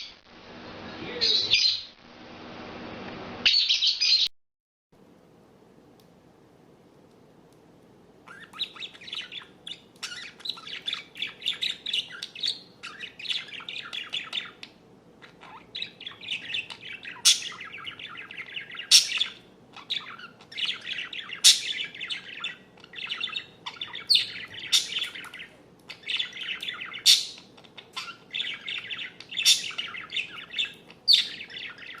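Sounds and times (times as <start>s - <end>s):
songbird warbling: 8.3s - 32.0s.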